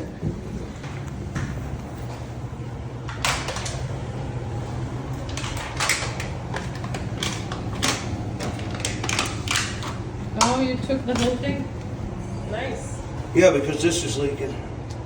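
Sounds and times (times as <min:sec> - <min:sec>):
steady low hum: 0:00.0 - 0:15.0
clicks and knocks of objects handled: 0:05.2 - 0:11.4.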